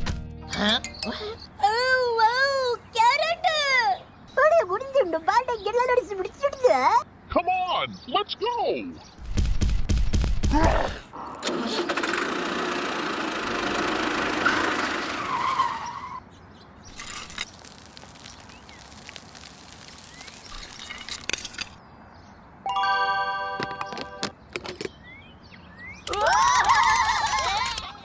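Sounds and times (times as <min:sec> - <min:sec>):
faint scattered clicking: 0:26.1 - 0:28.0.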